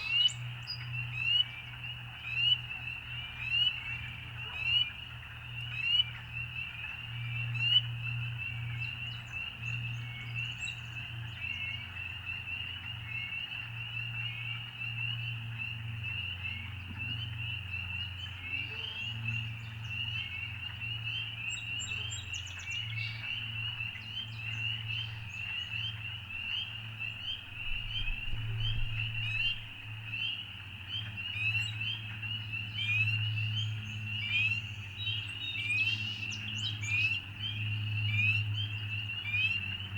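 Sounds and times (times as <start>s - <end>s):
chorus of frogs peeping: 0.0s - 39.9s
low steady hum: 21.5s - 30.2s.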